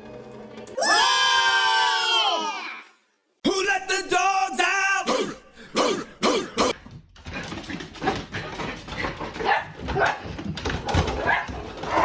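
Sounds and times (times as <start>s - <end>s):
dog barking: 9.4s - 10.2s, 11.2s - 12.0s.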